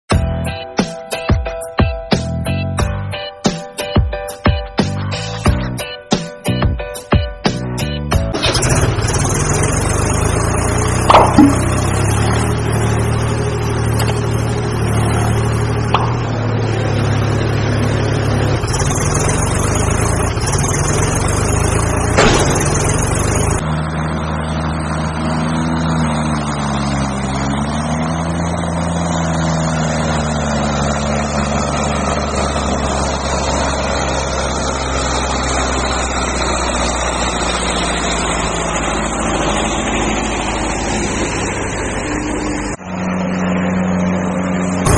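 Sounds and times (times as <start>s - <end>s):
heavy diesel engine running: 0.1s - 44.9s
sharp knocks: 11.0s - 12.1s, 15.9s - 16.5s, 22.1s - 23.6s.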